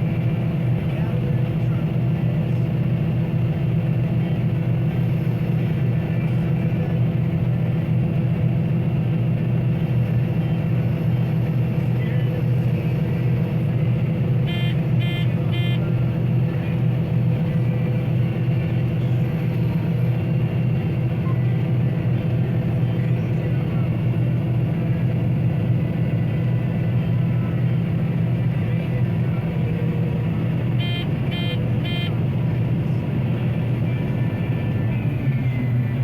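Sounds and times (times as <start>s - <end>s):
combine harvester engine drone: 0.0s - 36.0s
short electronic beeps: 14.5s - 15.9s, 30.7s - 32.2s.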